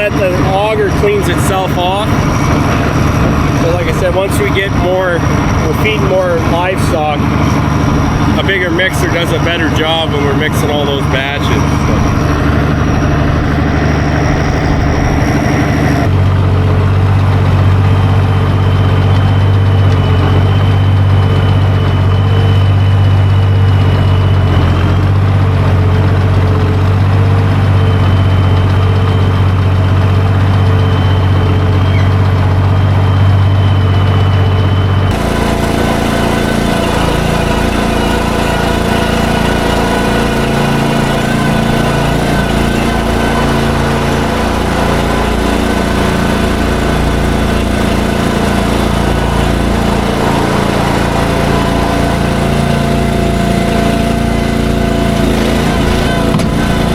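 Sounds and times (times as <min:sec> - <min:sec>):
thin high whine: 0:00.0 - 0:16.1, 0:27.6 - 0:56.9
tractor engine running: 0:00.0 - 0:56.9.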